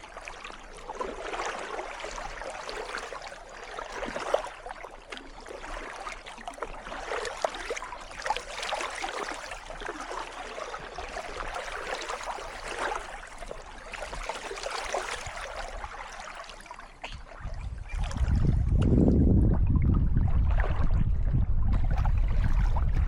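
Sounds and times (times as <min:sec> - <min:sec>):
paddle splashing in water: 0:00.0 - 0:23.0.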